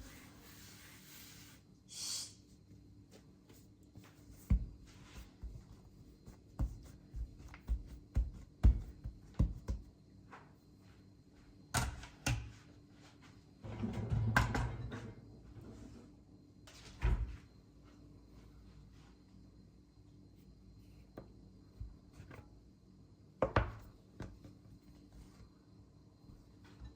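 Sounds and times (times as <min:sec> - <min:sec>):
light knocks and thuds: 0:04.4 - 0:05.7, 0:06.6 - 0:09.9.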